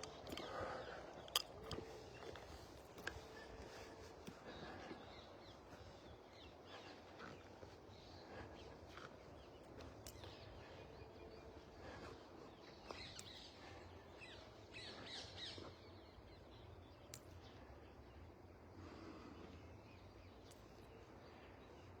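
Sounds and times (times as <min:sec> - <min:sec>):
faint birds chirping: 0:00.0 - 0:22.0
quiet outdoor background noise: 0:00.0 - 0:22.0
faint clicks: 0:17.1 - 0:17.4, 0:20.4 - 0:20.8.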